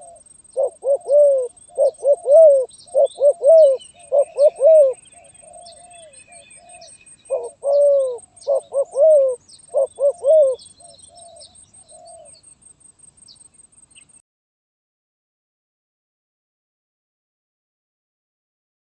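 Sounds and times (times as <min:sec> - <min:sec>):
dove cooing: 0:00.0 - 0:12.4
small birds chirping: 0:00.0 - 0:14.2.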